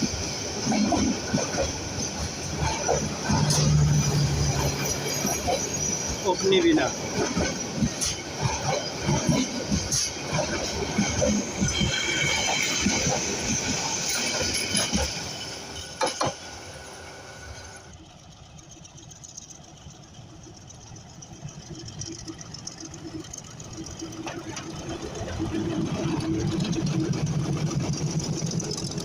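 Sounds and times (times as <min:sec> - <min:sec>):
train wheels clattering: 0:00.0 - 0:29.0
faint wheel squeal: 0:03.4 - 0:08.9
engine sound: 0:16.6 - 0:29.0.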